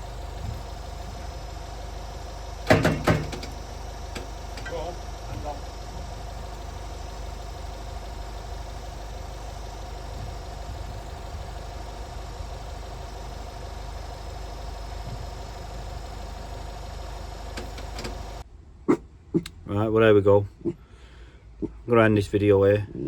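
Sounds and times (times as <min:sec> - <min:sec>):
diesel engine cranking with starter motor: 0:00.0 - 0:18.4.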